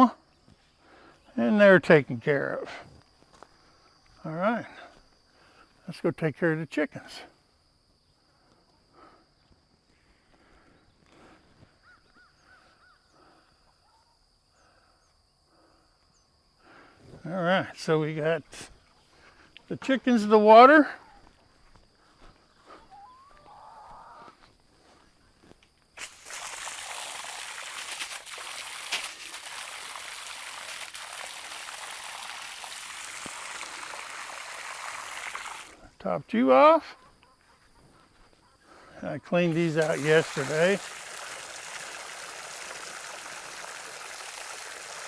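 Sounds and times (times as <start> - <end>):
water running into container: 26.0 - 35.8, 39.4 - 45.0.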